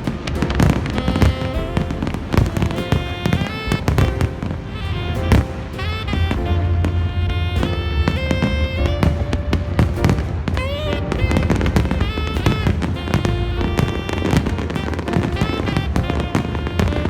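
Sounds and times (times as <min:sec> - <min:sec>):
fireworks bangs and crackles: 0:00.0 - 0:17.0
loud music with deep bass: 0:00.0 - 0:17.0.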